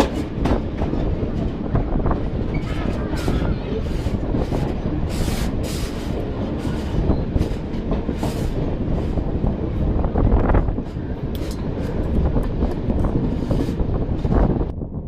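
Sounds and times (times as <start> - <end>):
wheels clattering over rail joints: 0.0 - 14.6
train wheels rumbling on rail: 0.0 - 15.0.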